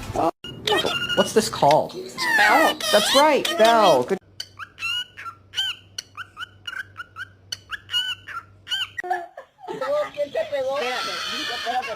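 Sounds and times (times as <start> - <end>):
parrot whistled chirps: 4.5 - 9.0.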